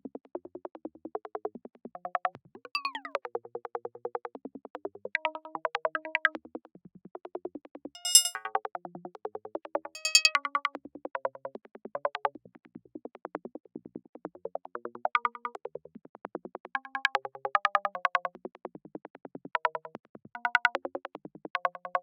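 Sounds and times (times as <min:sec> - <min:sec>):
bright high synth chirps: 0:02.8 - 0:03.1, 0:10.0 - 0:10.3.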